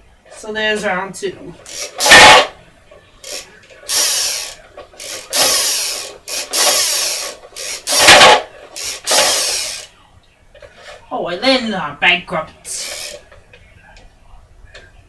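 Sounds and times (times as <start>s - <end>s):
plastic wheel spinning and whirring: 1.6s - 2.6s, 3.2s - 9.9s, 12.7s - 13.4s.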